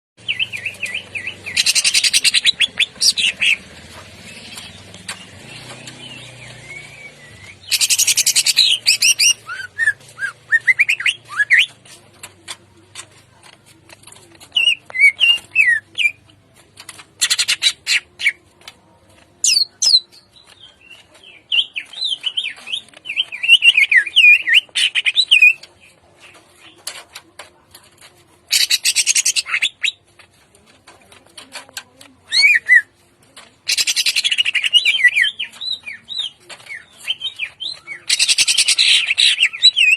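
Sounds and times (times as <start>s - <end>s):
bird whistled song: 0.2s - 3.6s, 5.6s - 11.7s, 14.6s - 16.2s, 21.5s - 25.6s, 32.3s - 32.9s, 33.7s - 39.9s.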